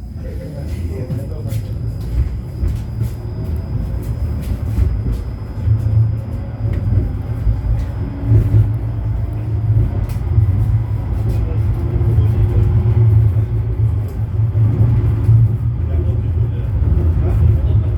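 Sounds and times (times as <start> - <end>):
tram wheels rumbling on track: 0.0 - 17.9.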